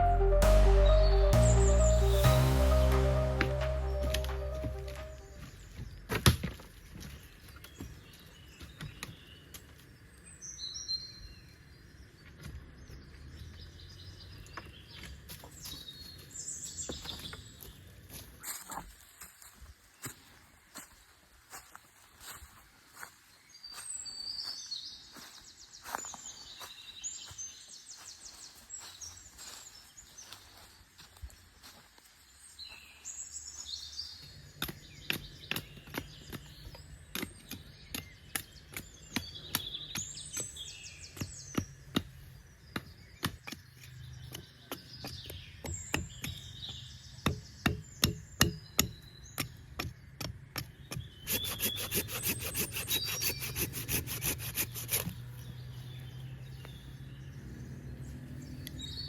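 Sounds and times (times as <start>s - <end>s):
birds singing: 32.6s - 59.0s.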